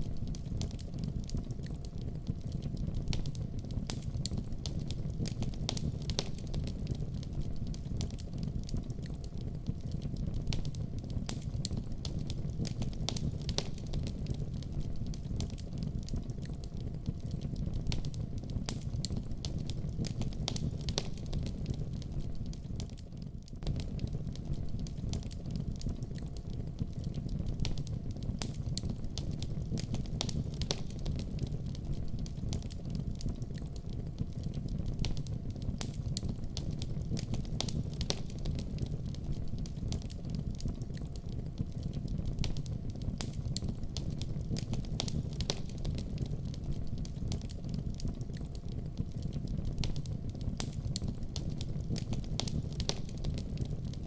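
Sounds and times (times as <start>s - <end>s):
fire popping and crackling: 0.0s - 54.0s
wood fire burning: 0.0s - 54.0s.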